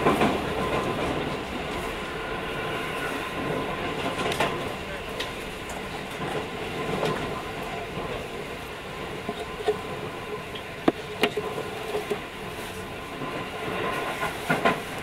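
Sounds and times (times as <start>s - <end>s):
train rolling rumble: 0.0s - 15.0s.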